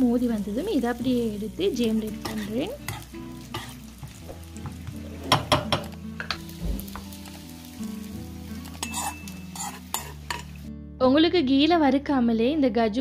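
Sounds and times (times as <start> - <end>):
nuts sizzling in a pan: 0.0 - 10.7
spoon clinking against a pan: 2.2 - 3.8, 8.6 - 10.6.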